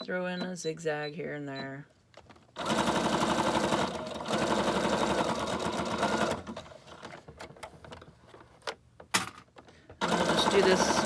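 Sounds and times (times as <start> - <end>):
sewing machine stitching: 2.6 - 7.1, 10.0 - 11.0.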